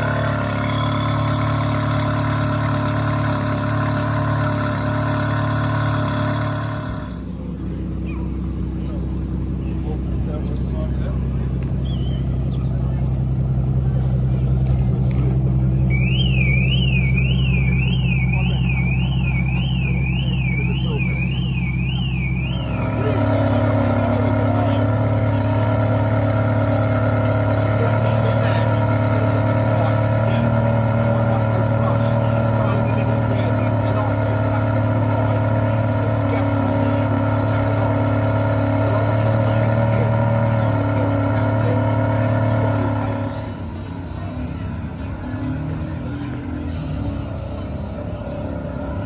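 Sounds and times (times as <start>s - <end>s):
car alarm wailing: 0.0s - 2.2s, 15.8s - 24.8s
engine idling: 0.0s - 49.0s.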